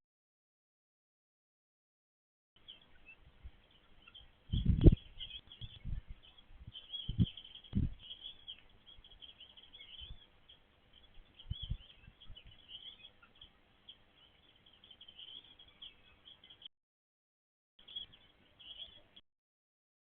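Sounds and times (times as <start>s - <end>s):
small birds chirping: 2.6s - 16.7s, 17.8s - 19.2s
low thumps: 5.6s - 8.0s.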